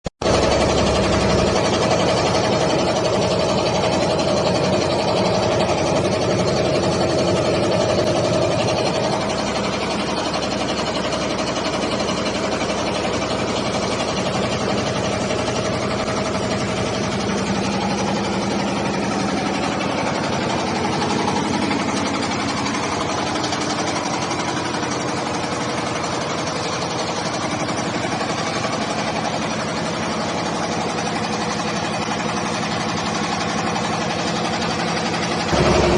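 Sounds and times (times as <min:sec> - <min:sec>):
roaster machine hum: 0:00.3 - 0:35.9
rushing noise: 0:35.5 - 0:35.9
steady tones: 0:35.5 - 0:35.9.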